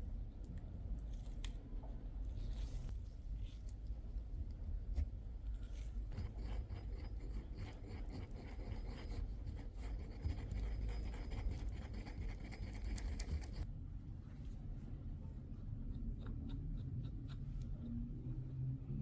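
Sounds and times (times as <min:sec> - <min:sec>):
light scratching and rubbing: 0:05.6 - 0:13.6.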